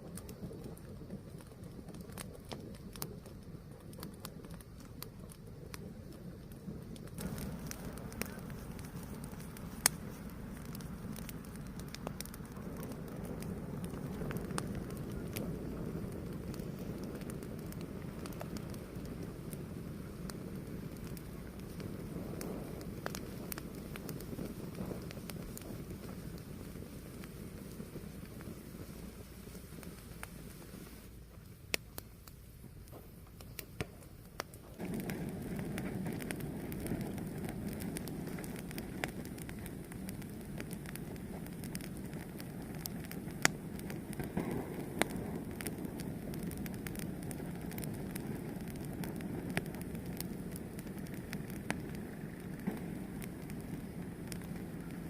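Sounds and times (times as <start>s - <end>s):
fire crackling: 0.0s - 55.0s
sharp pop of fire: 6.9s - 55.0s.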